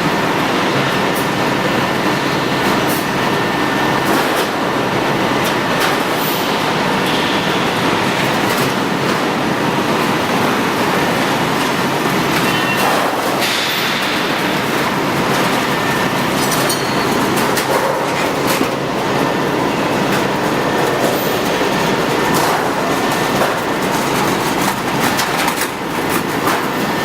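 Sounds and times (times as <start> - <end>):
machine rumbling: 11.0 - 27.0.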